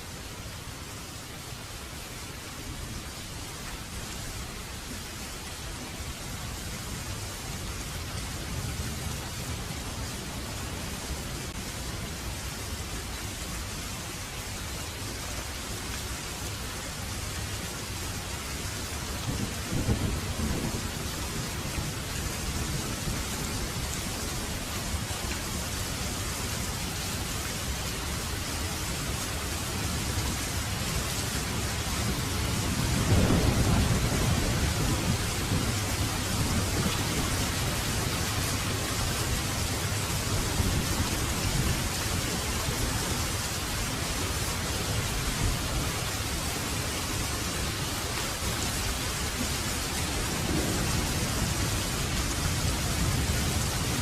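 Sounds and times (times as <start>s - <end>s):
heavy rain pouring: 0.0s - 54.0s
thunder rumbling: 19.2s - 24.0s, 32.0s - 38.3s, 49.3s - 54.0s.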